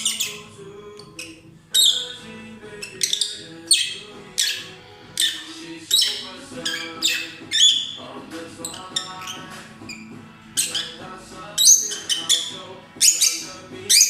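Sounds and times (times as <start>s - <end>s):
lovebirds chirping shrilly: 0.0s - 0.5s, 1.1s - 14.0s
faint background music: 0.0s - 14.0s.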